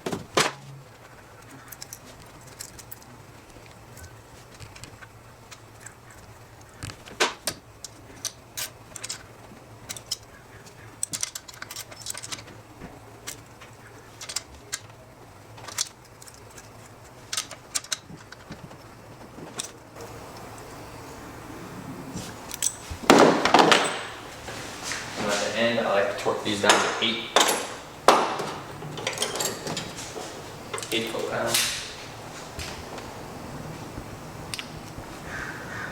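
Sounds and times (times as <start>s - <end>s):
metal parts and tools clinking: 22.2s - 33.1s
rattling clatter: 22.2s - 34.3s.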